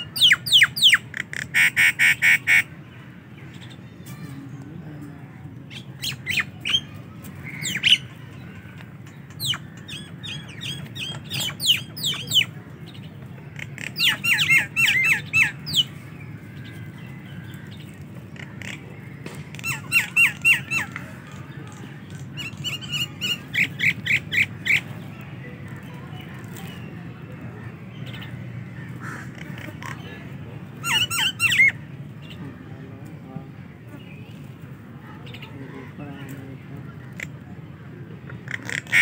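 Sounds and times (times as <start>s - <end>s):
myna birds calling: 0.0s - 39.0s.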